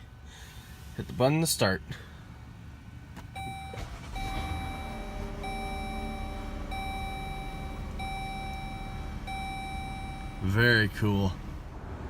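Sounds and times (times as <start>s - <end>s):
car engine humming: 2.0s - 12.0s
dashboard warning chime: 3.4s - 10.8s.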